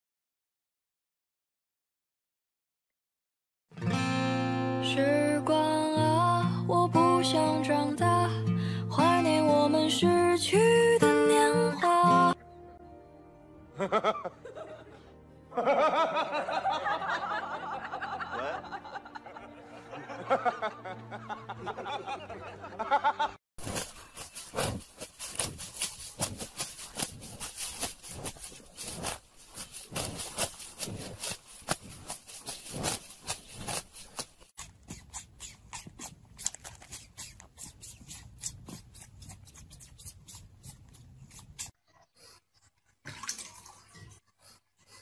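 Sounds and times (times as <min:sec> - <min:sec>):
cow tearing and chewing grass: 0:23.6 - 0:41.8.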